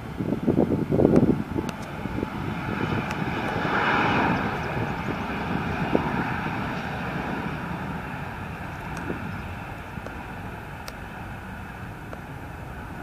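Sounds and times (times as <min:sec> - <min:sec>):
jet engines at takeoff: 0:00.0 - 0:13.0
wind buffeting microphone: 0:00.0 - 0:13.0.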